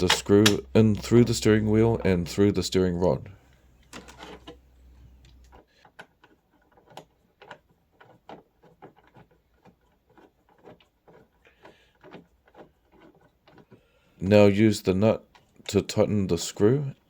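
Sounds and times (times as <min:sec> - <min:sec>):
faint clicks and taps of screw: 0:05.2 - 0:13.9.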